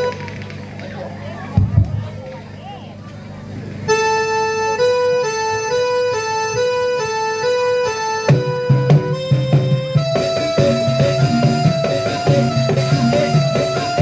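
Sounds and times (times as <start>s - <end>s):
organ-like electronic keyboard: 3.6s - 14.0s
bass line: 8.3s - 14.0s
electronic beat: 8.3s - 14.0s.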